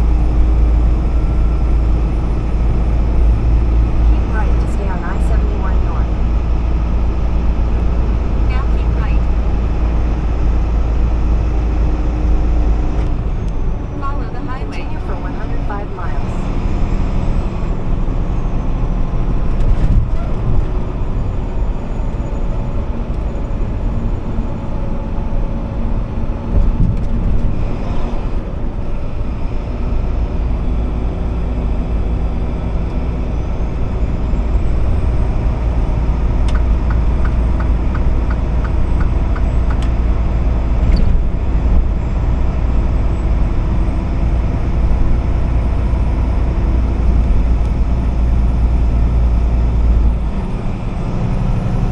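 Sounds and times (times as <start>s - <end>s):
truck engine and road noise: 0.0s - 51.9s.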